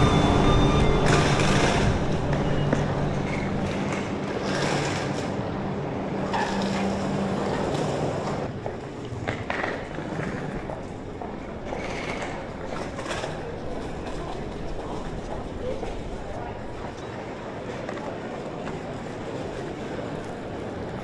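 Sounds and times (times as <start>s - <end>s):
low motor hum: 0.0s - 8.5s
metro train rolling noise: 0.0s - 21.0s.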